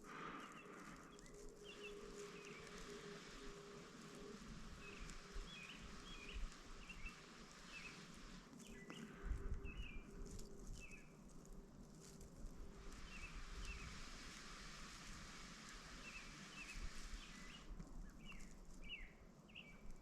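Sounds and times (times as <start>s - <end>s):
small bird chirping: 0.0s - 3.5s, 4.1s - 11.2s
faint steady hum: 0.0s - 20.0s.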